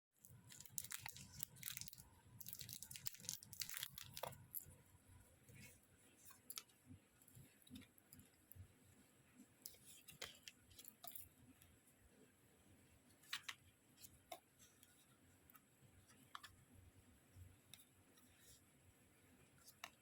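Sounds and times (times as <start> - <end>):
packaging crinkling and rustling: 0.2 - 4.6.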